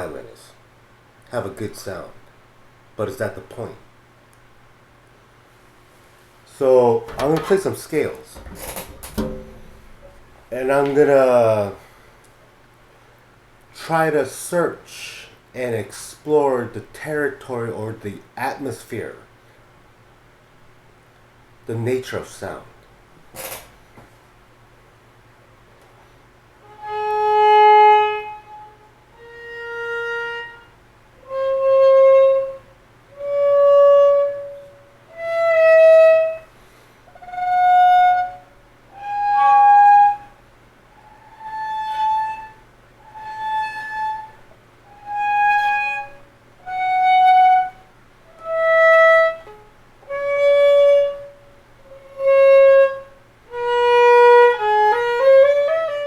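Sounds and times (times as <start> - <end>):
solo violin playing a scale: 48.4 - 56.0.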